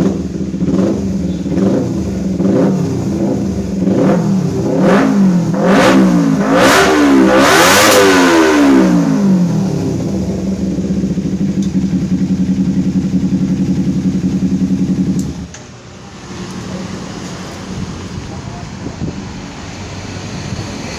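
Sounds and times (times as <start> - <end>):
engine exhaust revving and idling: 0.0 - 15.5.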